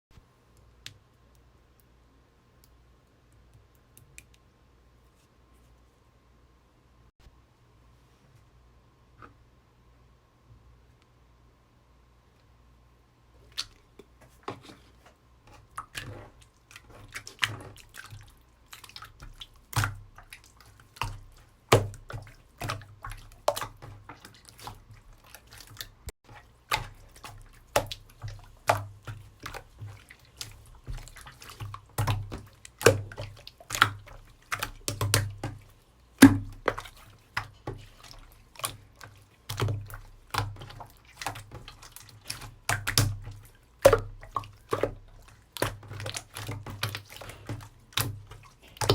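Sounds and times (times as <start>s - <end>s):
slime squishing with wet clicks: 0.4s - 4.6s, 13.4s - 14.8s, 15.5s - 48.9s.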